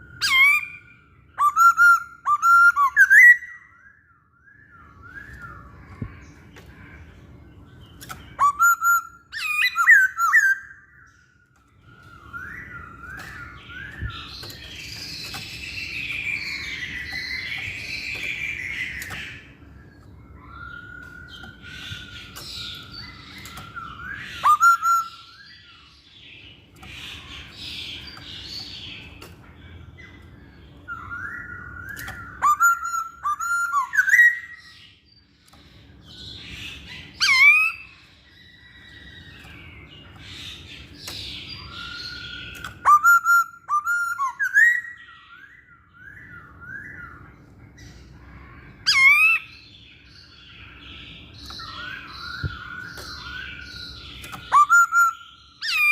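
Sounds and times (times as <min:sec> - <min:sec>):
bird singing whistled phrases: 0:00.0 - 0:06.1, 0:08.2 - 0:25.9, 0:30.7 - 0:34.8, 0:41.0 - 0:47.3, 0:51.4 - 0:55.9.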